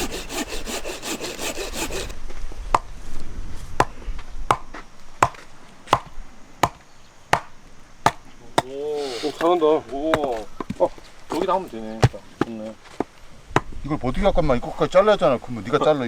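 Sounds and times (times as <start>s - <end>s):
hand saw rasping through wood: 0.0s - 2.2s, 8.6s - 12.6s.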